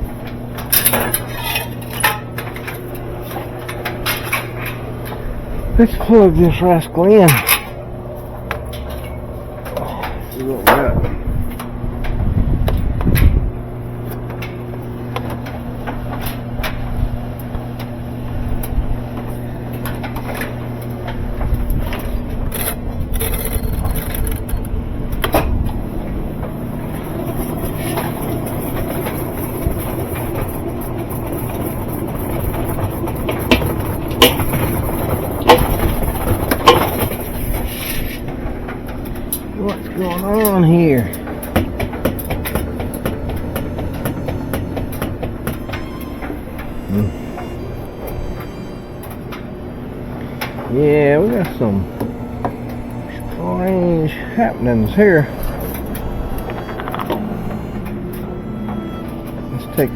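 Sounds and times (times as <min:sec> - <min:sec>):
washing machine motor hum: 0:00.0 - 0:59.9
rubbing and scraping: 0:26.8 - 0:38.4
sharp knocks: 0:41.5 - 0:46.0.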